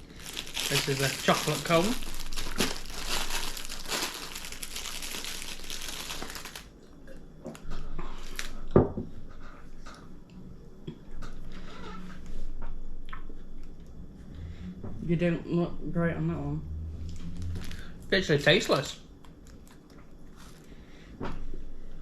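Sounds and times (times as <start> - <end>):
snack wrapper crinkling: 0.0 - 6.8, 8.2 - 8.6, 17.2 - 20.6.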